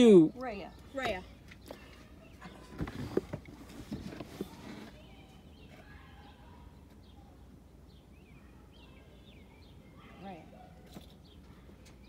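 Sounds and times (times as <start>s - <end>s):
faint bird chirps: 3.8s - 12.0s.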